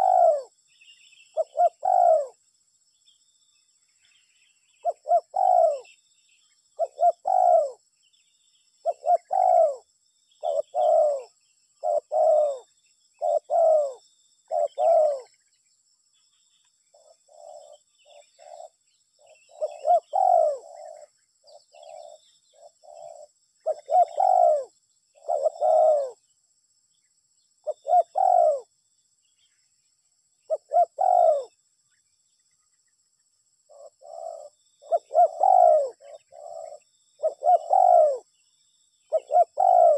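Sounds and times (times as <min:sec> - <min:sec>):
dove cooing: 0:00.0 - 0:00.6, 0:01.2 - 0:02.4, 0:04.7 - 0:06.0, 0:06.7 - 0:07.8, 0:08.8 - 0:15.4, 0:16.9 - 0:26.3, 0:27.6 - 0:28.7, 0:30.5 - 0:31.6, 0:33.7 - 0:38.4, 0:39.1 - 0:39.9.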